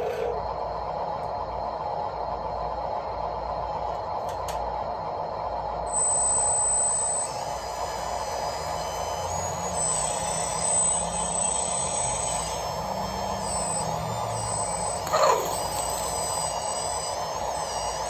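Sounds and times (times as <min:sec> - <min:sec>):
electric motors whirring: 0:00.0 - 0:00.6, 0:06.0 - 0:18.0
high-pitched whine: 0:00.0 - 0:18.0.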